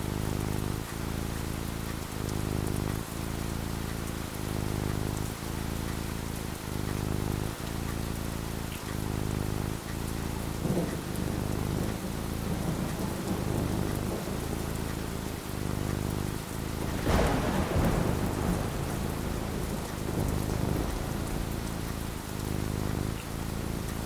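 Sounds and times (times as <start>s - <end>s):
steady rain falling: 0.0s - 24.0s
thunder rumbling: 10.6s - 24.0s
loud thunderclap: 16.8s - 23.2s.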